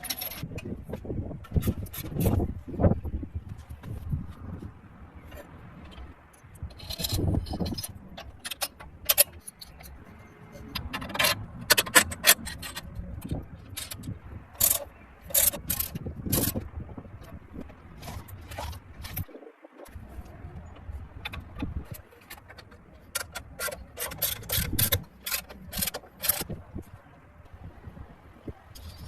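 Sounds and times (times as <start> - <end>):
scraping on metal: 0.0 - 2.8, 5.2 - 27.2
sharp clicks on metal parts: 5.3 - 26.9.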